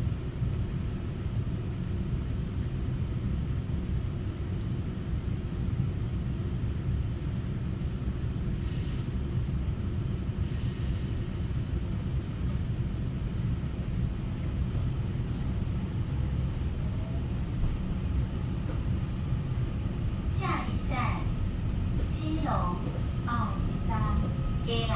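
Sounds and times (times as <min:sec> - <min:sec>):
train wheels rumbling: 0:10.3 - 0:24.9.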